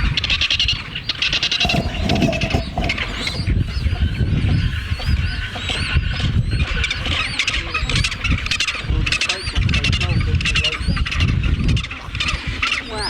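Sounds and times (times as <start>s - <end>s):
birds chirping: 0.0s - 8.3s.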